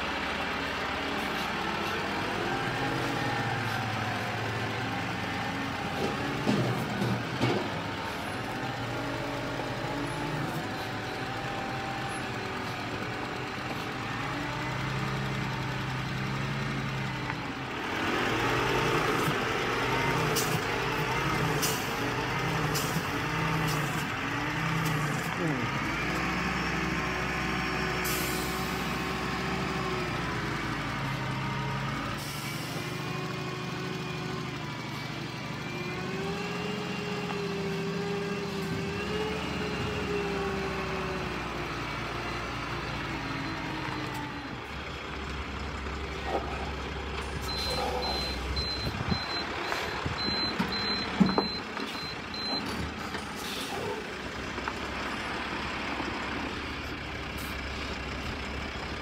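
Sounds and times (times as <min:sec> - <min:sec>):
diesel engine revving: 0:00.0 - 0:59.0
reversing alarm beeping: 0:47.4 - 0:52.8.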